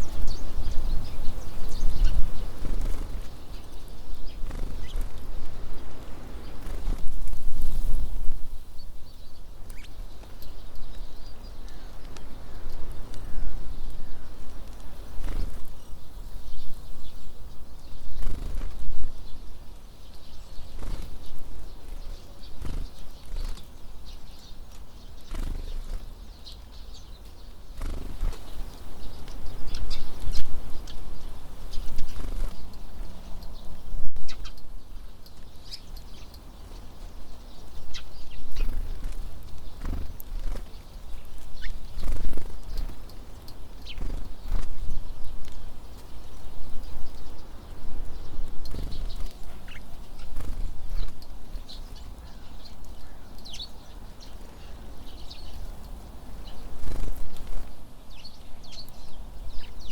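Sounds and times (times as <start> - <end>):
wing flutters: 0.0 - 8.2, 14.5 - 15.9, 18.1 - 19.1, 20.6 - 23.8, 25.1 - 26.9, 27.7 - 31.0, 31.7 - 33.2, 38.5 - 46.1, 48.1 - 52.4, 56.3 - 57.8
wind buffeting microphone: 0.0 - 8.9.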